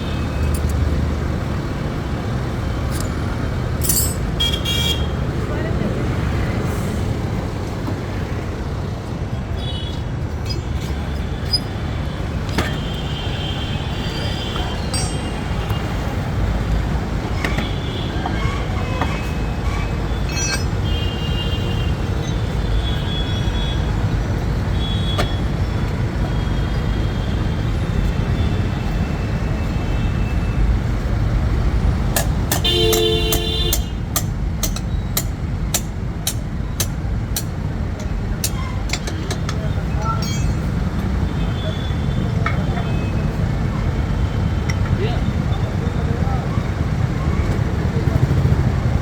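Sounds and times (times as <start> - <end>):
road traffic rumble: 0.0 - 49.0
vehicle horn honks: 32.6 - 33.9.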